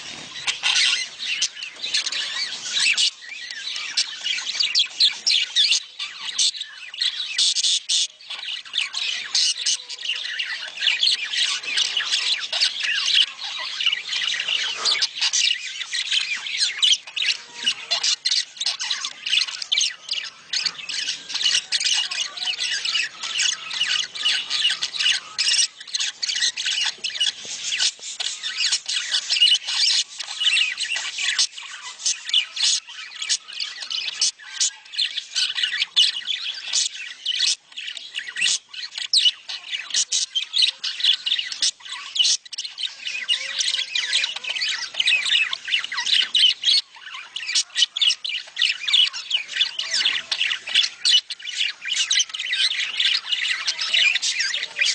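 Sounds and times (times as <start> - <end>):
budgerigars chattering: 0.0 - 54.9.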